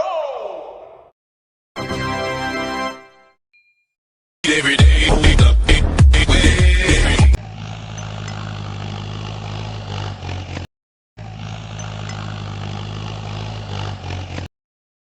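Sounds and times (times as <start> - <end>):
vehicle engine idling: 7.3 - 10.6.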